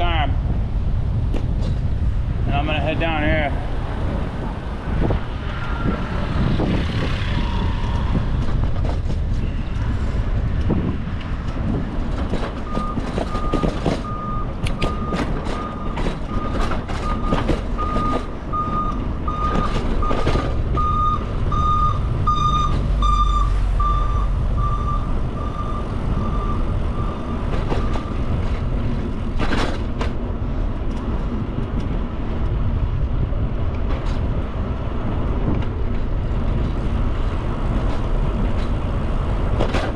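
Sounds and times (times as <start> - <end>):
deep engine rumble: 0.0 - 39.9
traffic: 0.0 - 39.9
wind rumble on microphone: 0.0 - 39.9
reversing alarm beeping: 12.6 - 28.3.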